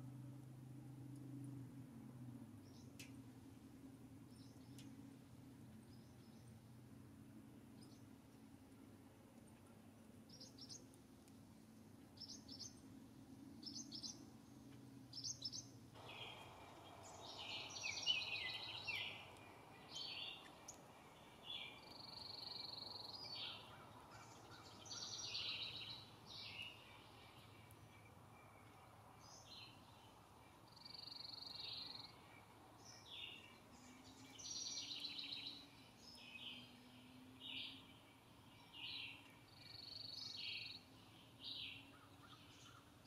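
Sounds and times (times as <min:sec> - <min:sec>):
low steady hum: 0:00.0 - 0:43.0
sharp tick: 0:02.9 - 0:03.2
faint bird chirps: 0:15.1 - 0:43.0
bird trill: 0:15.2 - 0:27.5.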